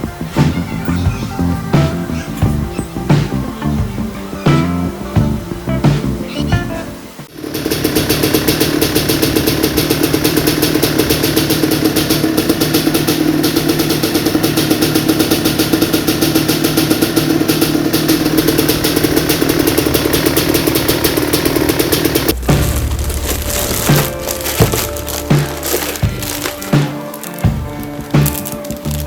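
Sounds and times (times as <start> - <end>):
two-stroke engine running: 7.3 - 29.0.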